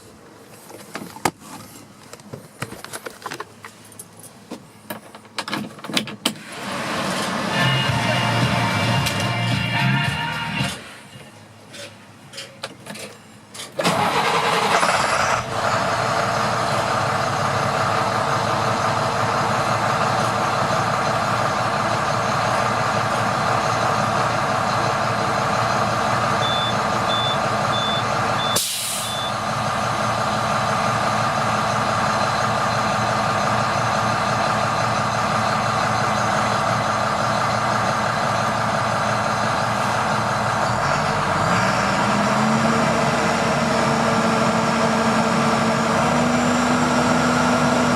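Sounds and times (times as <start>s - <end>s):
diesel engine cranking and idling: 3.1s - 47.9s
short high beeps: 26.4s - 29.4s
brief hiss: 28.6s - 29.2s.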